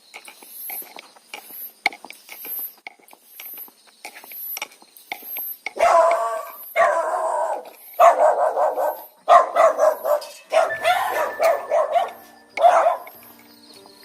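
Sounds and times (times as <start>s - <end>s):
dog barking: 5.8s - 13.3s.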